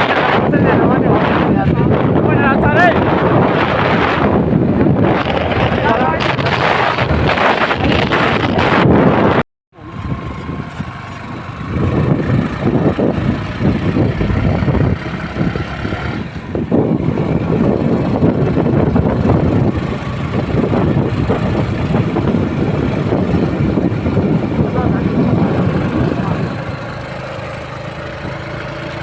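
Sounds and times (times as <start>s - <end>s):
motorcycle engine riding: 0.0s - 29.0s.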